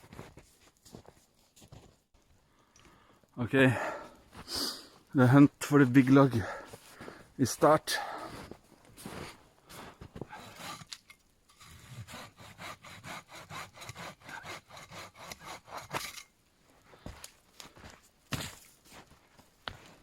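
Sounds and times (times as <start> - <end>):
hand saw cutting wood: 10.3 - 16.2.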